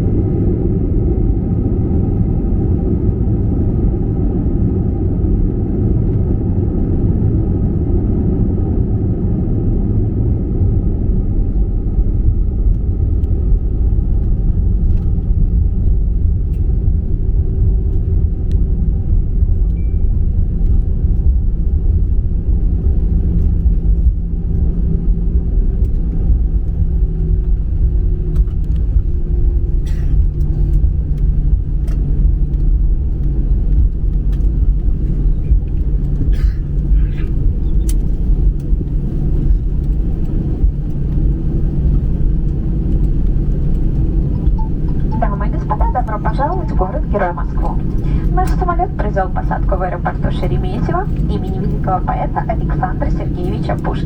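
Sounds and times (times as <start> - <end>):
jet engine and airflow rumble: 0.0 - 54.0
faint engine tone: 42.6 - 54.0.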